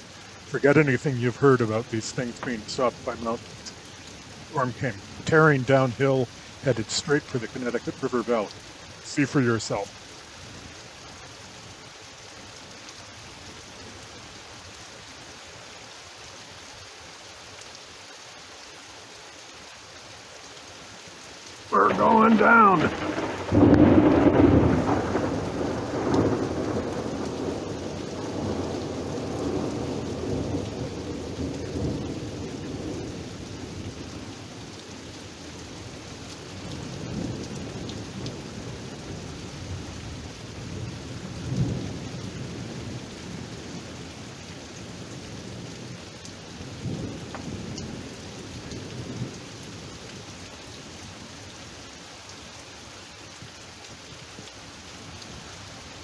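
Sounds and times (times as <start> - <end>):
heavy rain falling: 0.0 - 56.0
rolling thunder: 21.8 - 33.9.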